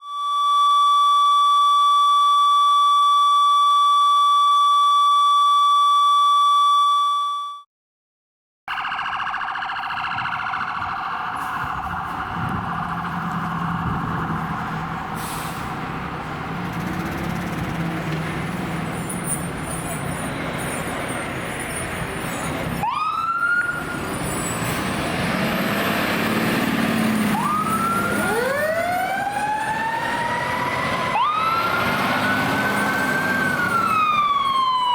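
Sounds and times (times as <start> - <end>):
fire engine sirens wailing: 0.0 - 7.2, 8.7 - 34.9
street noise: 8.7 - 34.9
engine running: 9.8 - 21.4.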